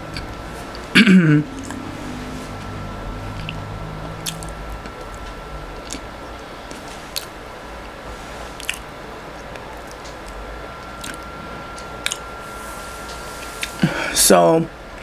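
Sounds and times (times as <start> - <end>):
faint high whine: 0.0 - 15.0
person chewing soft bread: 4.2 - 5.2, 5.8 - 6.1, 6.7 - 7.3, 8.5 - 10.4, 11.0 - 11.2, 12.0 - 12.2
wet mouth clicks: 8.6 - 8.8.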